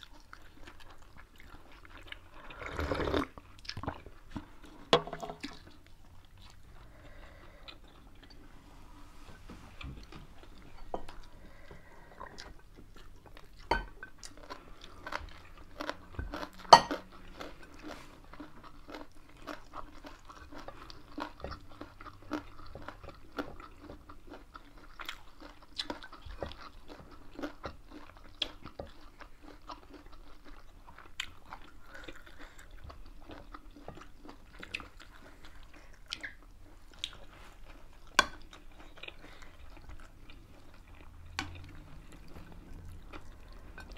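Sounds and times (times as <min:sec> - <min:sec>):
chewing and crunching food: 0:00.0 - 0:43.9.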